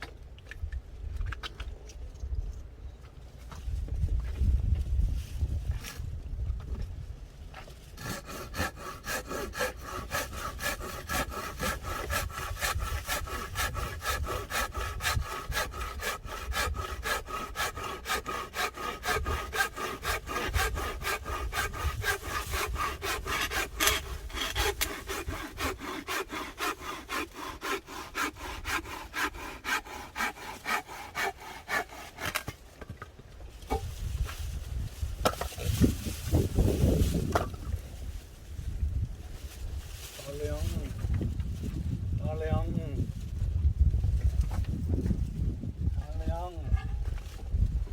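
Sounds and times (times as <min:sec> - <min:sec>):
hand saw cutting wood: 0:07.9 - 0:32.8.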